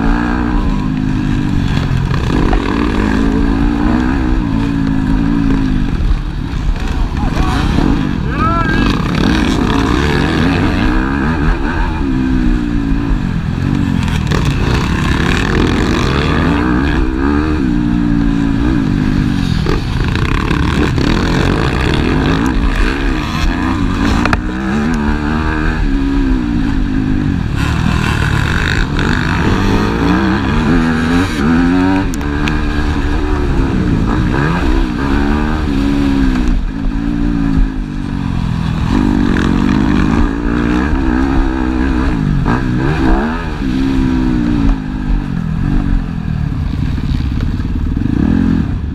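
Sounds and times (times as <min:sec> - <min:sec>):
motocross bike engines revving: 0:00.0 - 0:48.9.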